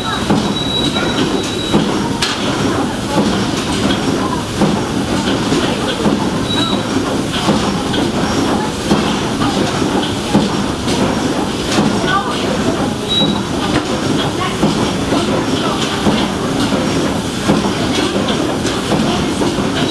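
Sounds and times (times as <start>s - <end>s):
steam engine running: 0.0s - 19.9s.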